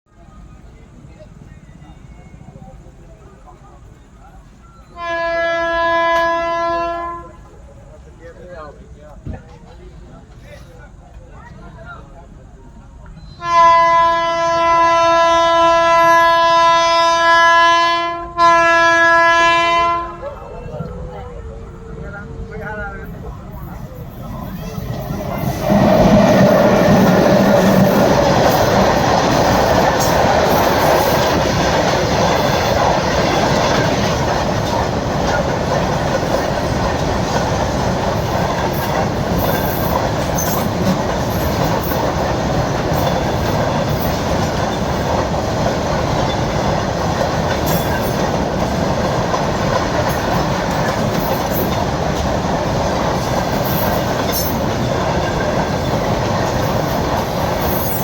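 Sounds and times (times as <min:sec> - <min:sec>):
train wheels rolling on rails: 0:18.5 - 0:58.0.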